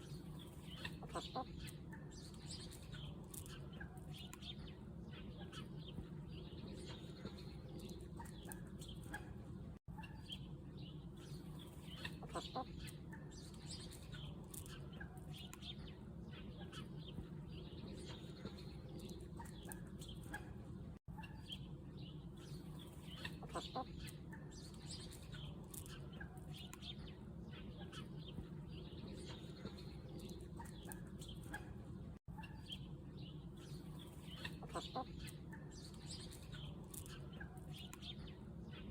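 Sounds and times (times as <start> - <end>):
chickens clucking: 0.3 - 4.5, 11.2 - 15.7, 22.7 - 26.9, 33.6 - 38.1.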